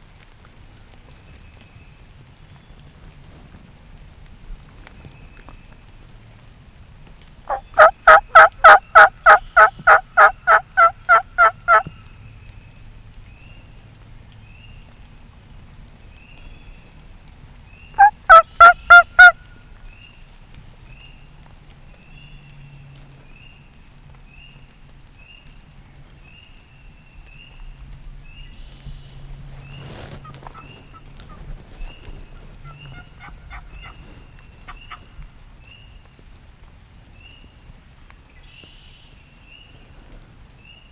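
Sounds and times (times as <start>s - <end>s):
turkey yelping: 7.5s - 11.9s, 18.0s - 19.4s, 32.6s - 34.0s.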